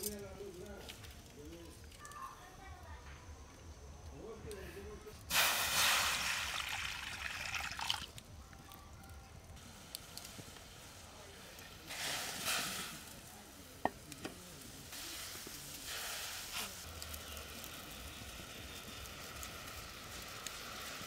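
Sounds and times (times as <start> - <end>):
fish frying in hot oil: 5.3 - 8.2, 14.2 - 21.0.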